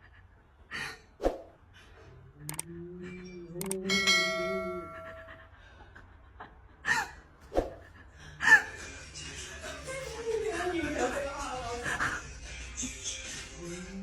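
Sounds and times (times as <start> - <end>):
ringing metallic ding: 3.1 - 5.3.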